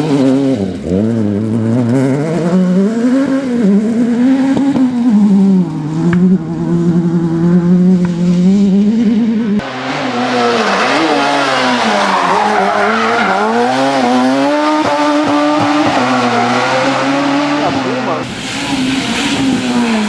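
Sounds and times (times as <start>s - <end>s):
rally car engine revving: 0.0s - 20.0s
tyre noise hiss: 17.7s - 20.0s.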